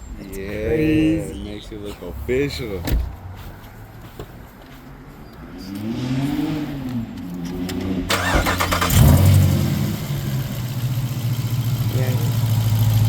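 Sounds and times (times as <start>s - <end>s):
lower engine note rising and falling: 5.5s - 13.0s
engine cranking and starting: 7.7s - 10.9s
deep engine idle: 10.0s - 13.0s.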